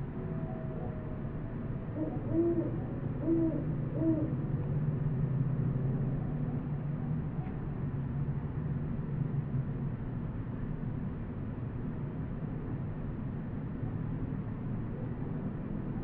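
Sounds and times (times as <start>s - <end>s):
low background rumble: 0.0s - 16.0s
owl hooting: 1.9s - 4.4s.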